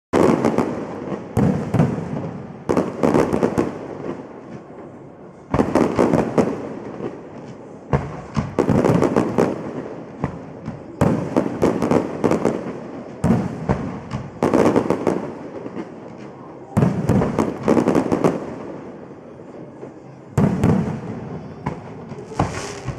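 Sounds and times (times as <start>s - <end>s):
fireworks bangs and crackles: 0.1s - 22.9s.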